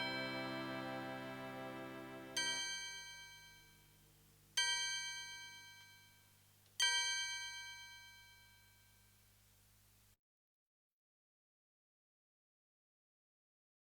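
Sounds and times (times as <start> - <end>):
bell-like chime strikes: 0.0 - 1.3.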